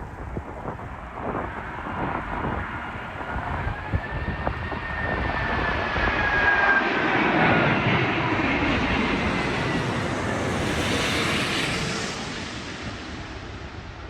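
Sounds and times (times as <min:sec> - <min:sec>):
wind buffeting microphone: 0:00.0 - 0:12.1
jet engines roaring: 0:00.0 - 0:14.0.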